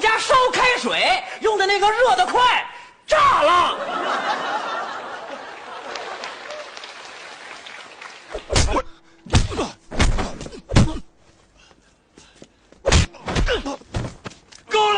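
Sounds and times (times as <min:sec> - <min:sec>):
loud thumps: 0:08.4 - 0:11.1.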